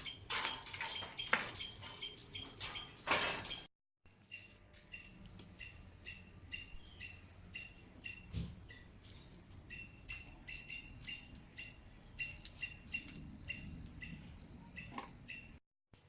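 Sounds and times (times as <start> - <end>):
small bird chirping: 4.2 - 15.6.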